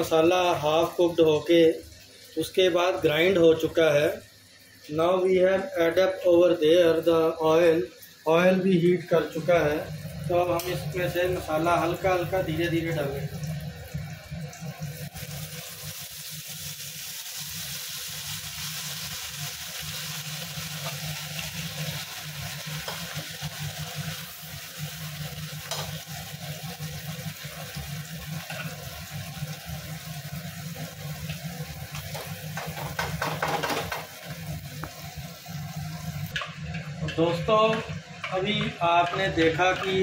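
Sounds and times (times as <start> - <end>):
paste sizzling in hot oil: 0.0 - 40.0.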